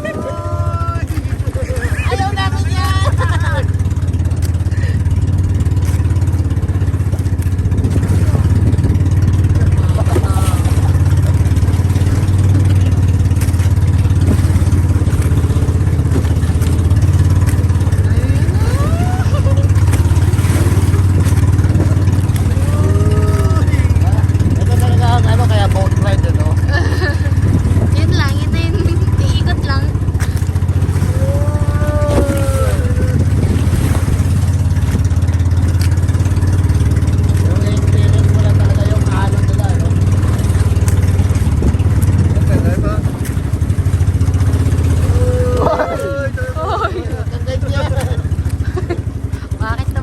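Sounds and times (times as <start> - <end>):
vehicle engine humming: 0.0 - 50.0.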